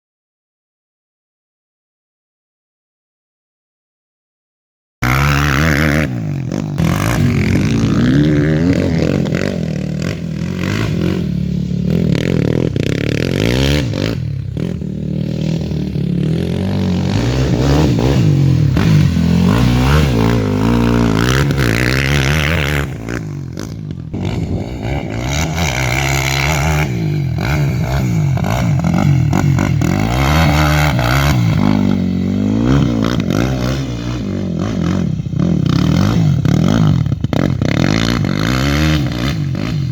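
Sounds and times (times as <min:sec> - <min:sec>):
quad bike engine revving: 0:05.0 - 0:39.9.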